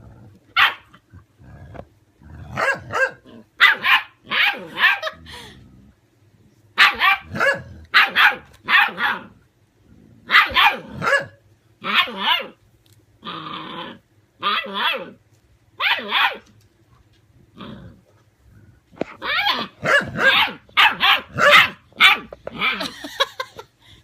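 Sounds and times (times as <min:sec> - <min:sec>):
puppy snarling: 0:00.0 - 0:05.6, 0:06.8 - 0:09.4, 0:10.0 - 0:12.6, 0:13.2 - 0:15.2, 0:17.5 - 0:22.9.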